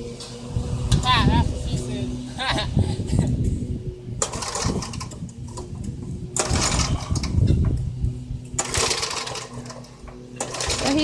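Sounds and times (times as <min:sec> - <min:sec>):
garden tiller engine running: 0:04.1 - 0:11.0.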